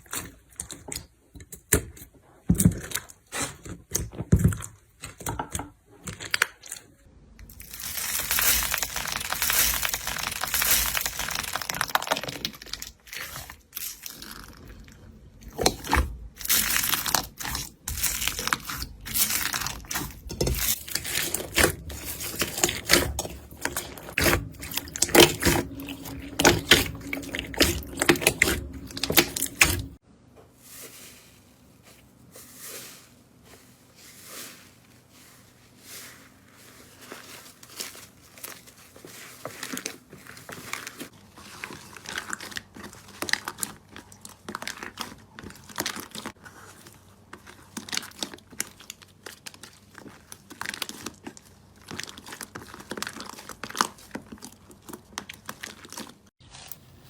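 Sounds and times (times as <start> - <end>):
slime crackling and popping: 7.4 - 30.0, 47.3 - 56.8.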